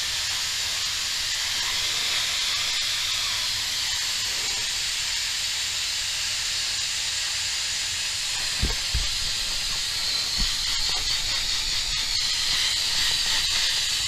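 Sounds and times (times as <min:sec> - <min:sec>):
compressed air hissing: 0:00.0 - 0:05.5, 0:07.9 - 0:14.0
soft low thumps: 0:08.4 - 0:11.8.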